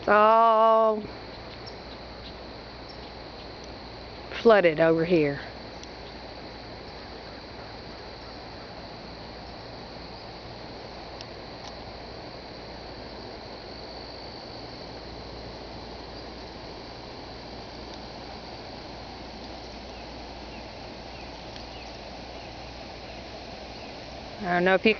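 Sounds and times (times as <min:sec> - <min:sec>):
high-pitched hum: 0:00.0 - 0:24.9.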